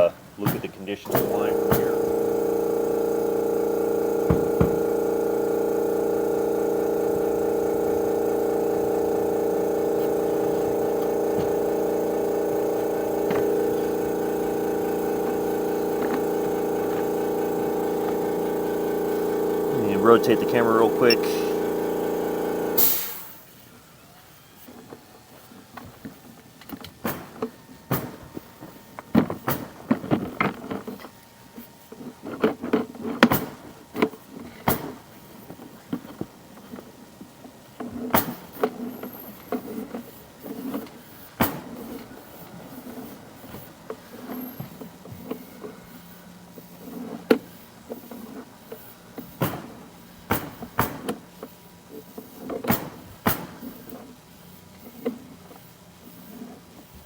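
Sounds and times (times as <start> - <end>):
faint steady hum: 1.0 - 23.4
push cable knocking and rattling: 1.1 - 22.8.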